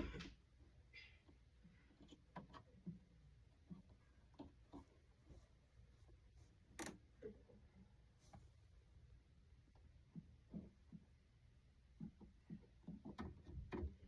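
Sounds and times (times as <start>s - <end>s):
faint clicks and taps: 1.2s - 7.3s, 9.6s - 14.0s.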